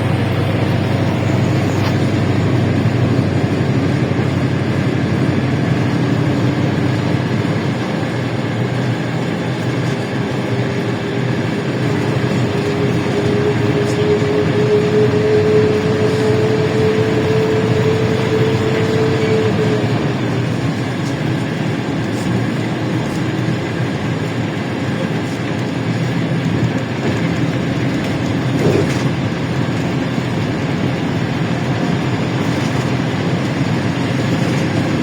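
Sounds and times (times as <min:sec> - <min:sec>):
whine rising in pitch: 0:00.0 - 0:07.6, 0:11.0 - 0:20.4
bus engine and road noise: 0:00.0 - 0:35.0.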